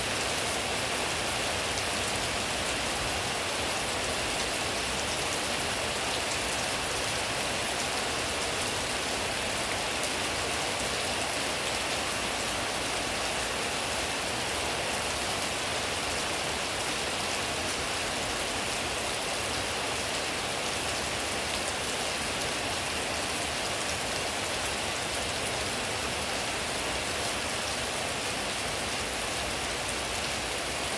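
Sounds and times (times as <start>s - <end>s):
steady rain falling: 0.0s - 30.9s.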